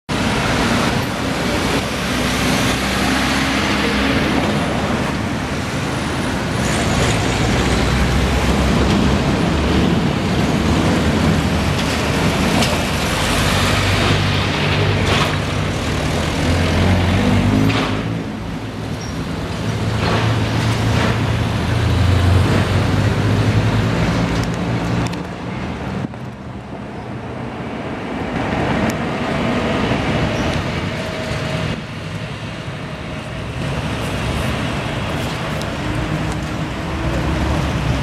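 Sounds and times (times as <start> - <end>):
heavy vehicle engines: 0.1 - 38.0
street traffic: 0.1 - 38.0.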